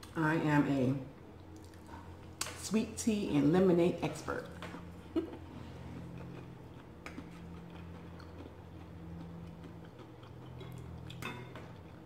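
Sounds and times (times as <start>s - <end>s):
faint low hum: 0.0s - 12.0s
soft chewing: 1.3s - 2.6s, 4.4s - 12.0s.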